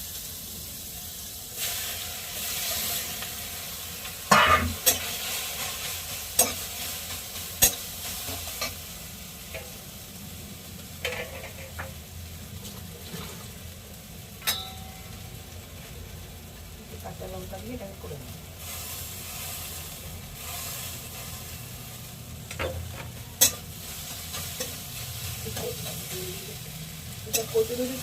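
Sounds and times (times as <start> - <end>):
food sizzling in hot oil: 0.0 - 28.0.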